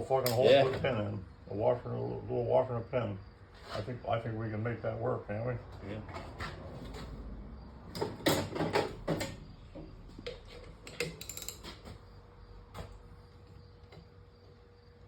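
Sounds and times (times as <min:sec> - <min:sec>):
tools and metal parts clinking: 0:10.3 - 0:12.0.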